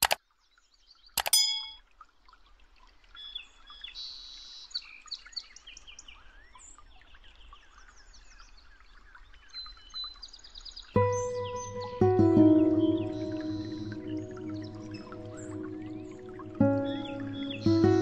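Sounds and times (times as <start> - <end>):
birds chirping: 11.0 - 18.0.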